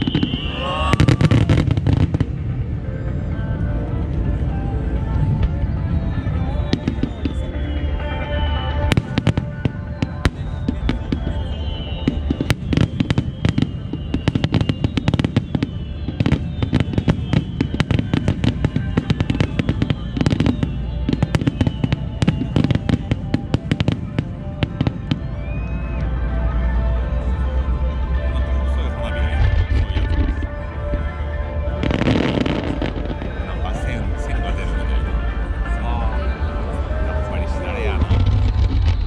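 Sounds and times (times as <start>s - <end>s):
fireworks bursting with bangs: 0.0s - 3.0s, 5.0s - 26.2s, 29.3s - 31.1s, 31.8s - 34.7s, 37.8s - 39.0s
music playing: 0.0s - 39.0s.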